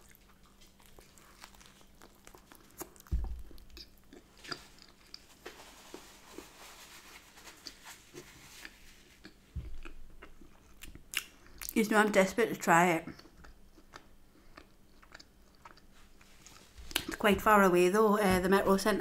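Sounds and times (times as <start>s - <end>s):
chewing with wet mouth clicks: 0.0s - 5.3s, 9.2s - 11.8s, 13.1s - 15.9s.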